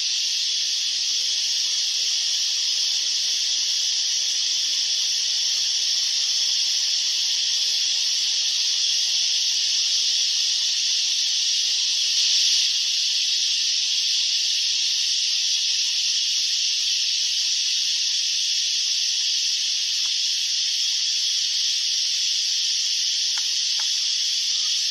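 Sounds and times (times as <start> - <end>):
cicadas buzzing: 0.0 - 24.9.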